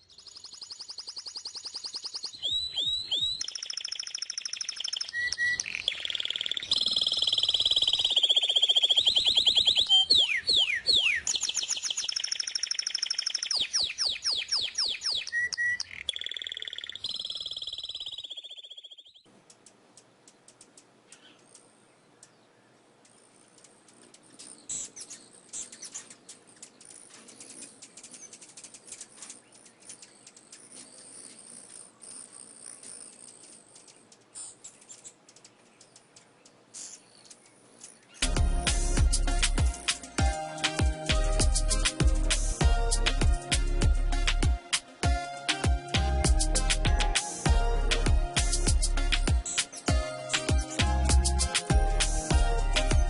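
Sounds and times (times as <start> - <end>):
faint high chirping: 0.0 - 19.3
songbird trills and whistles: 0.0 - 19.3.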